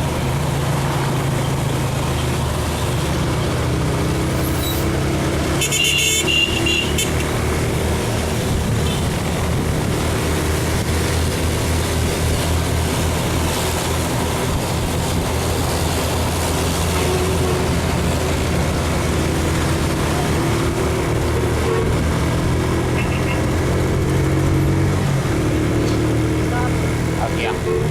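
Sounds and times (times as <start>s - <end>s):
traffic: 0.0s - 27.9s
wind and road noise: 0.0s - 27.9s
brief high-pitched sound: 4.2s - 4.9s.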